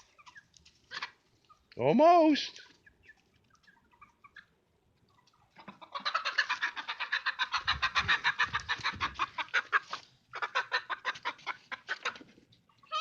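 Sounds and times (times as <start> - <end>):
chicken squawking alarm calls: 5.6 - 12.2.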